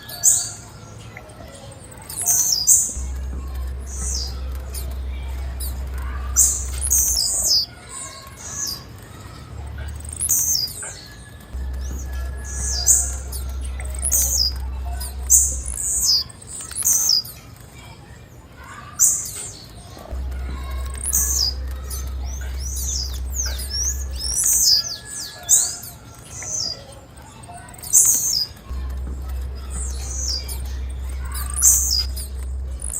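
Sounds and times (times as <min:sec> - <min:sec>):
bird chirping: 0:00.0 - 0:32.9
low hum: 0:02.7 - 0:07.7, 0:08.8 - 0:10.6, 0:11.2 - 0:16.5, 0:20.0 - 0:24.9, 0:28.6 - 0:32.9.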